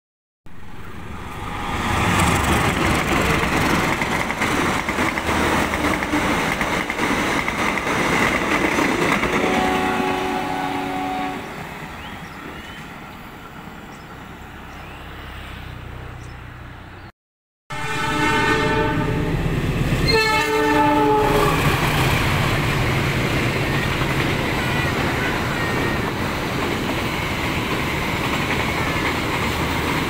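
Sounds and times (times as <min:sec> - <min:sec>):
train wheels clattering on rails: 0:01.8 - 0:10.2, 0:21.5 - 0:30.0.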